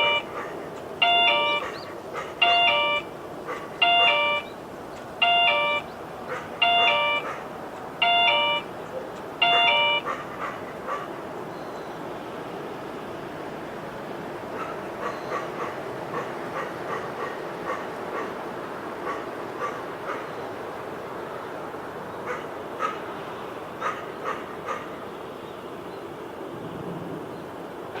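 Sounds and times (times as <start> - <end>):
dog barking: 0.2 - 0.7, 1.5 - 2.4, 3.4 - 4.2, 6.2 - 7.5, 8.9 - 11.2, 14.5 - 18.4, 19.0 - 20.3, 22.2 - 23.0, 23.8 - 25.0.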